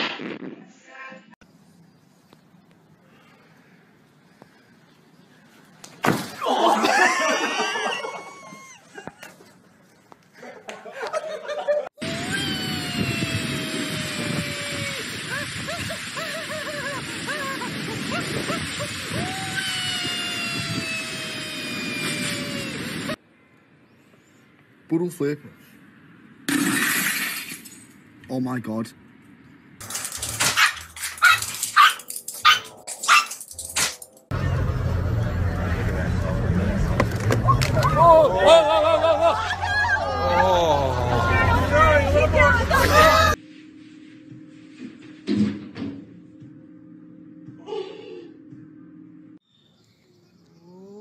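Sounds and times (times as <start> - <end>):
storm wind howling: 12.0 - 23.2
small dog barking: 30.6 - 33.3.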